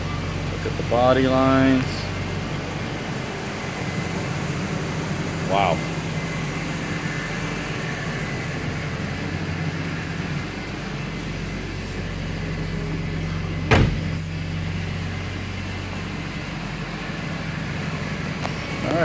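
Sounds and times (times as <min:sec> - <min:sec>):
car engine idling: 0:00.0 - 0:19.0
car door shutting: 0:13.6 - 0:14.3.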